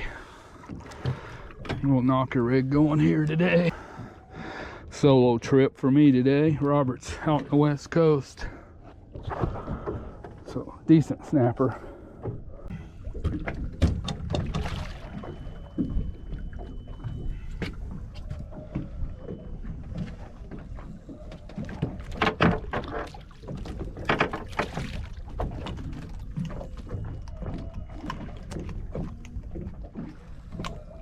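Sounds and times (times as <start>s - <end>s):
water rumbling against boat hull: 0.0s - 31.0s.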